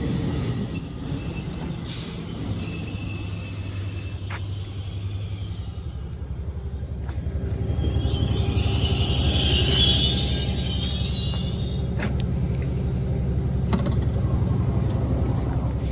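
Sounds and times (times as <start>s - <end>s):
metallic wheel squeal: 0.0s - 12.3s
train running by: 0.0s - 15.9s.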